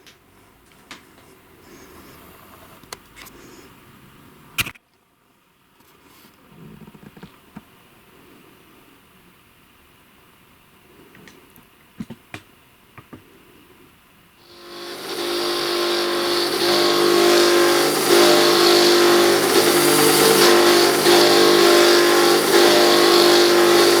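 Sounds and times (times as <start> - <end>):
belt grinder motor humming: 14.5 - 24.0
belt hiss: 14.5 - 24.0.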